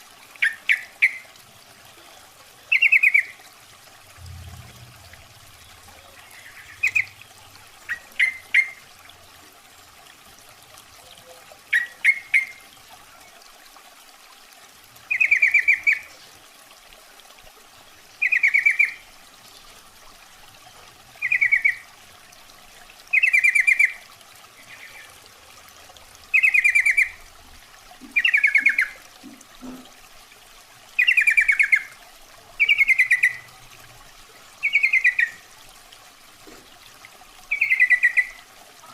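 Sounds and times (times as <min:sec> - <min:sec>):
bulbul bubbling calls: 0:00.4 - 0:01.4, 0:02.6 - 0:03.5, 0:04.2 - 0:09.0, 0:11.0 - 0:12.7, 0:15.1 - 0:16.3, 0:18.2 - 0:19.1, 0:21.1 - 0:22.0, 0:23.1 - 0:25.3, 0:26.3 - 0:27.4, 0:28.0 - 0:30.0, 0:31.0 - 0:32.0, 0:32.6 - 0:33.6, 0:34.6 - 0:35.5, 0:37.5 - 0:38.5.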